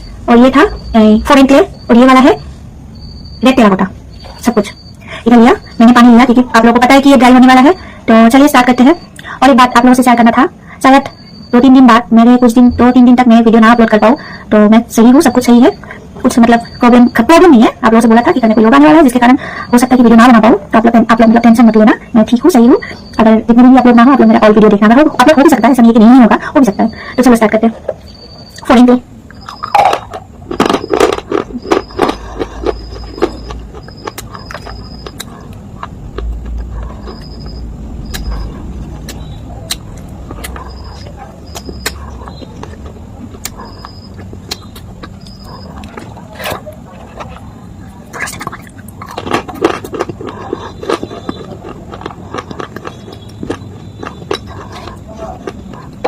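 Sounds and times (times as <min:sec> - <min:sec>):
short high beeps: 0:37.0 - 0:38.6.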